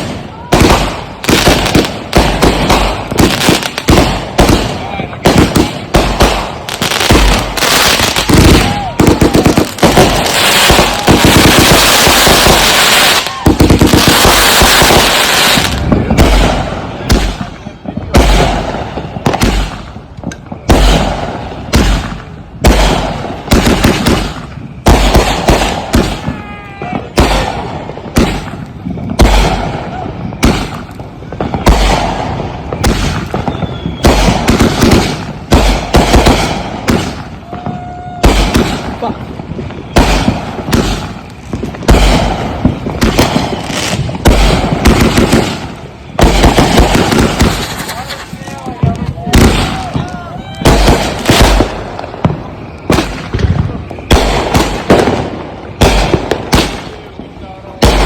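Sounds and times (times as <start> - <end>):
fireworks booming: 0.0 - 58.0
sharp firework cracks: 0.0 - 58.0
firework shell bursts: 44.3 - 49.8.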